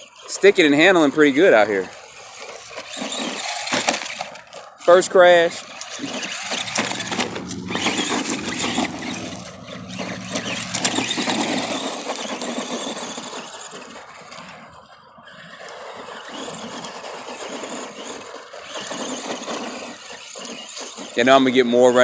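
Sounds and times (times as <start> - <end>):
toy car electric motor humming: 0.0 - 22.0
tyres and chassis knocking: 6.3 - 12.6.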